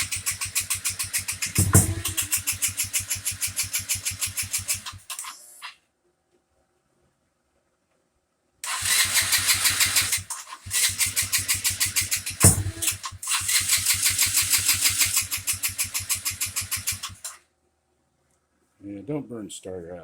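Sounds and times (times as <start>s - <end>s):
electric starter cranking engine: 0.0s - 5.7s, 8.6s - 17.4s
sharp loud pop: 1.6s - 2.3s, 12.4s - 13.0s.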